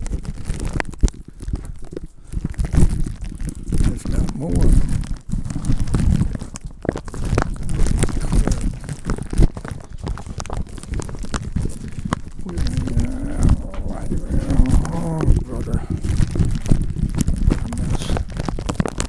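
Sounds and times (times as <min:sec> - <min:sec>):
crunching and crackling: 0:00.0 - 0:19.0
low wind rumble: 0:12.4 - 0:18.1.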